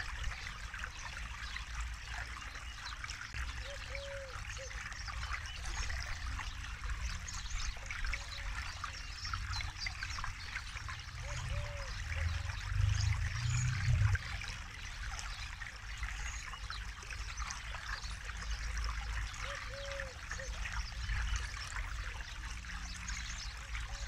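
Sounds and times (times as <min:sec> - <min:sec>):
river water babbling: 0:00.0 - 0:24.0
low rumble: 0:11.1 - 0:14.4.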